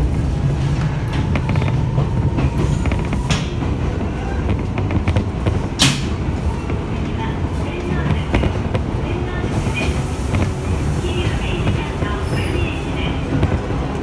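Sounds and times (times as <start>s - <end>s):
train wheels rumbling: 0.0s - 14.0s
clicks over the track: 4.4s - 6.8s, 7.8s - 8.9s.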